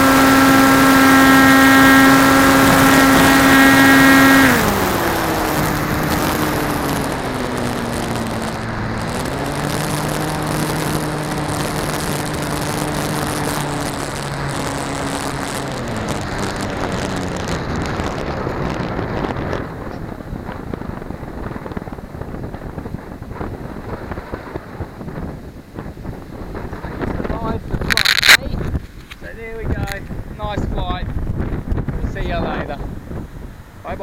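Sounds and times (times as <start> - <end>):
model plane motor and propeller: 0.0 - 22.8.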